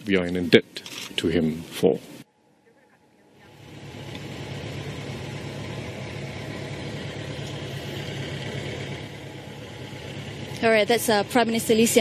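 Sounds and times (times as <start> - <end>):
vehicle engine idling: 3.2 - 12.0.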